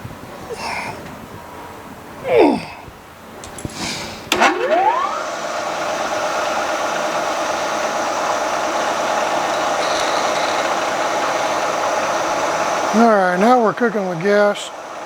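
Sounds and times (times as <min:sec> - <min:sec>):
milling machine spindle running: 0:04.4 - 0:15.0
drill boring into metal: 0:04.9 - 0:13.4.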